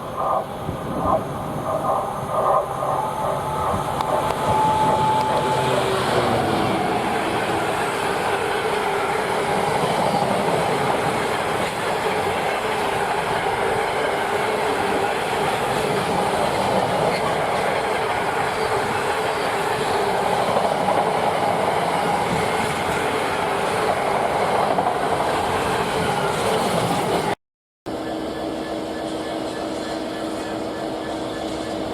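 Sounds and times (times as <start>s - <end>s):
faint even whine: 0.0s - 7.3s
train wheels running on rails: 0.0s - 31.9s.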